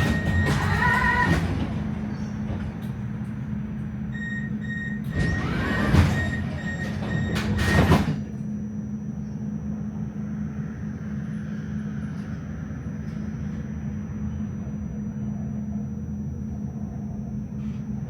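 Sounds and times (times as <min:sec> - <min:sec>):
doors sliding shut: 0:00.0 - 0:03.1, 0:05.0 - 0:08.3
tram door warning beeps: 0:00.0 - 0:08.4
tram interior hum: 0:00.0 - 0:18.0.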